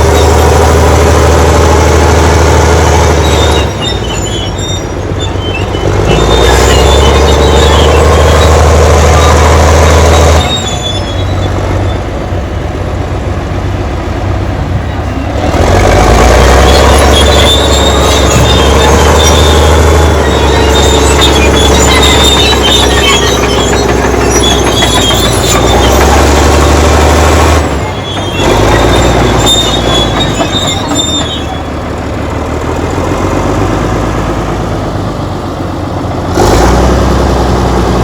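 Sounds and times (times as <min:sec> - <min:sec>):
bulldozer diesel engine under load: 0:00.0 - 0:38.0
track clatter and squeal: 0:00.0 - 0:38.0.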